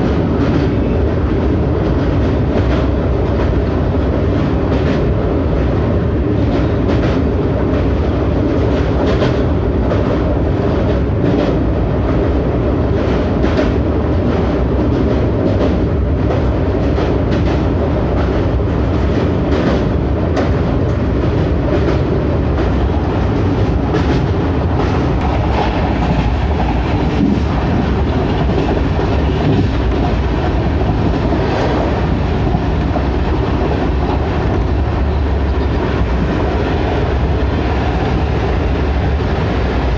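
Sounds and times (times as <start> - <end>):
train rolling rumble: 0.0 - 39.9.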